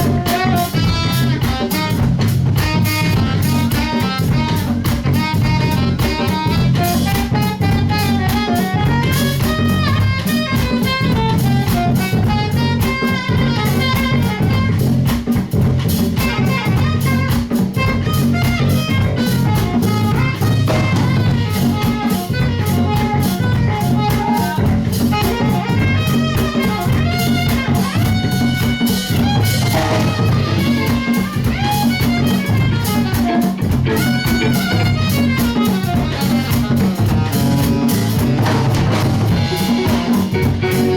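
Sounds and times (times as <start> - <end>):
bass groove: 0.0 - 40.9
drum kit: 0.0 - 40.9
melodic lead line: 18.2 - 40.9.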